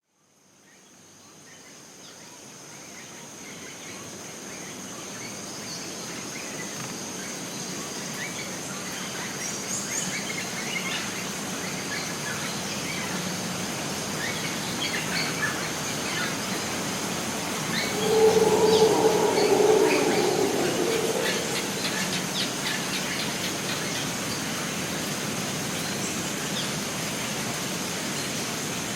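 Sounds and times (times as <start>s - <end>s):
insect drone: 14.5s - 23.4s
background hiss: 15.2s - 23.3s
loud low sound: 17.1s - 22.9s
birds chirping: 17.2s - 22.8s.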